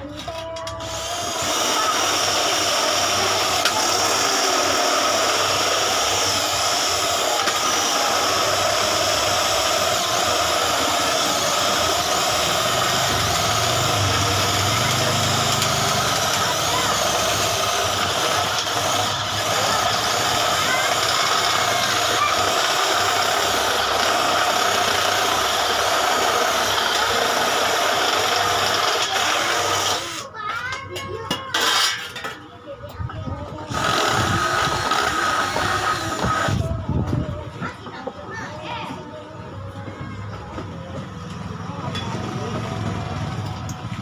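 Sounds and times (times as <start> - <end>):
small electric motor running: 0.5 - 30.3, 33.6 - 37.0.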